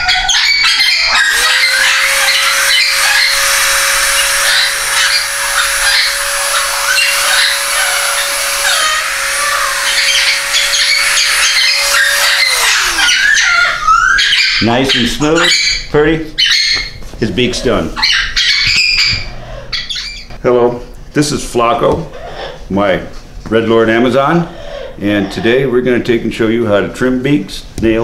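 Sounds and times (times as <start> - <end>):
parrot calling: 0.0 - 20.4, 22.1 - 22.7, 24.6 - 25.6
rotary tool grinding: 0.9 - 13.8.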